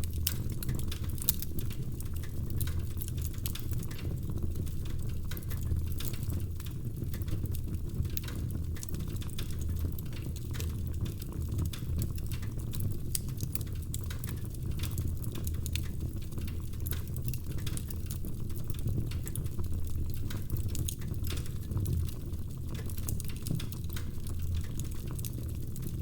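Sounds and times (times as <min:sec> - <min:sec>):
firewood crackling and popping: 0:00.0 - 0:26.0.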